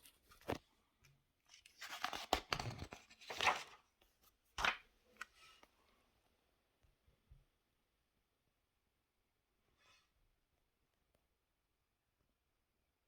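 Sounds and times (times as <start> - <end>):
paper pages rustling: 1.5 - 5.7.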